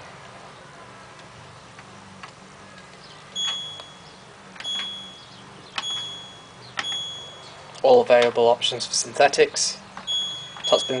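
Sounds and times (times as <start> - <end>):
control panel clicks: 2.2 - 4.0, 4.6 - 8.4, 10.0 - 11.0
short high-pitched beeps: 3.4 - 7.7, 10.0 - 11.0.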